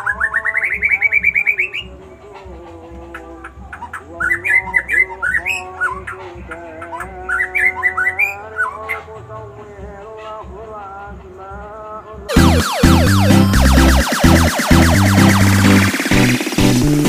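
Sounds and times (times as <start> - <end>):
songbird singing: 0.0 - 2.0, 3.0 - 9.1.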